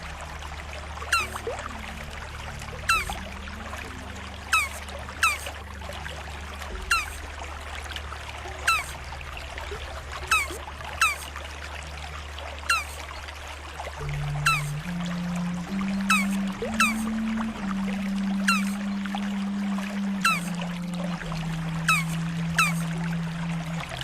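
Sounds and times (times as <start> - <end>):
low hum: 0.0 - 24.0
water trickling: 0.0 - 24.0
turtle chirping: 1.1 - 1.4, 2.8 - 3.2, 4.5 - 5.5, 6.8 - 7.2, 8.6 - 9.0, 10.3 - 11.3, 12.7 - 13.0, 14.2 - 17.4, 18.4 - 18.8, 20.2 - 20.6, 21.8 - 22.9.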